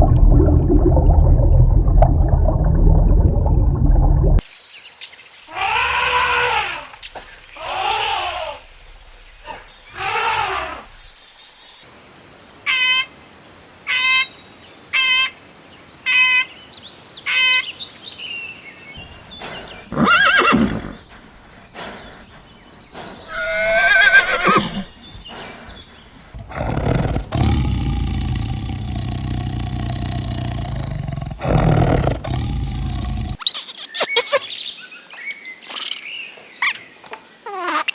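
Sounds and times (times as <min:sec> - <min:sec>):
horse whinnying: 0:19.4 - 0:21.3, 0:23.0 - 0:25.7.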